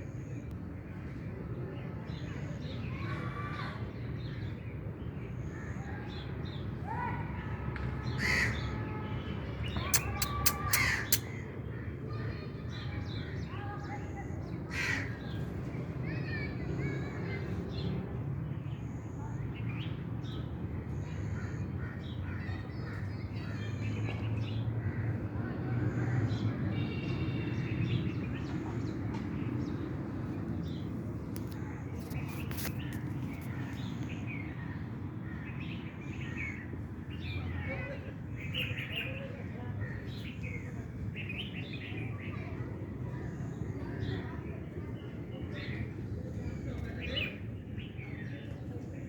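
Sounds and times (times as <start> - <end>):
crows cawing: 8.2 - 8.6, 10.4 - 11.2, 14.7 - 15.2
high bird chirps: 9.8 - 11.3.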